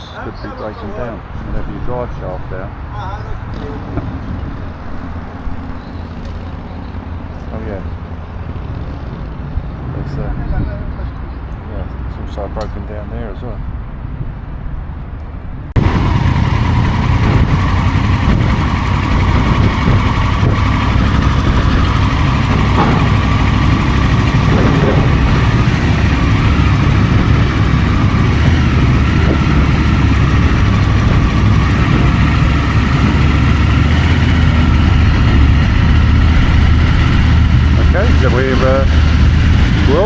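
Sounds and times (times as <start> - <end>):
vehicle engines running: 0.0 - 13.2, 15.7 - 40.0
loud rushing noise: 15.8 - 40.0.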